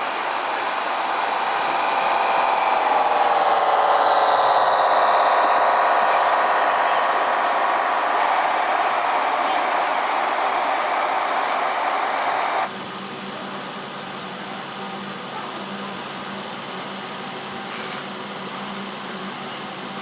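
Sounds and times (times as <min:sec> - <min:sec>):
small electric motor whining: 0:00.0 - 0:12.7.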